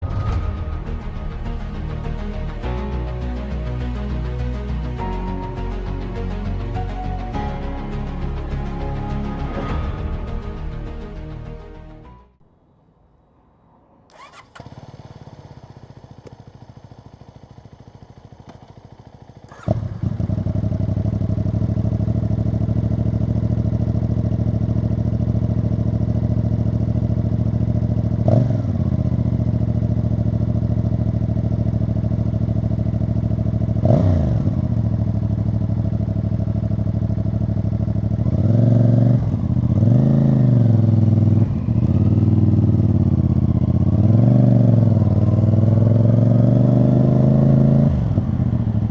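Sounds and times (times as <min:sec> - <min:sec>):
motorcycle engine idling and revving: 0:00.0 - 0:03.3, 0:14.1 - 0:48.9.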